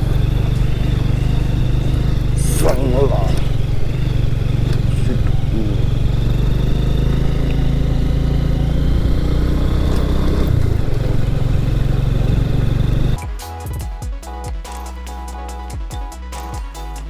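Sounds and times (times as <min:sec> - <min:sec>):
motorcycle engine running: 0:00.0 - 0:17.0
music: 0:13.2 - 0:17.0.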